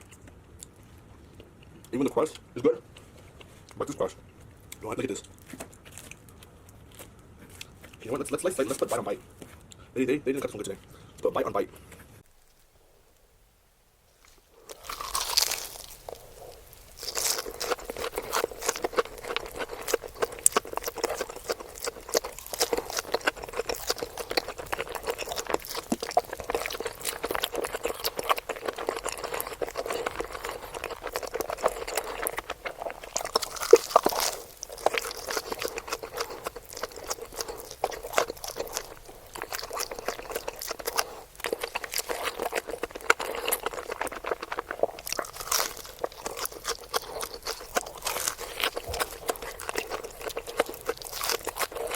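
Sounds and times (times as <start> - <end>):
chewing and biting food: 2.9 - 9.8, 14.6 - 51.9.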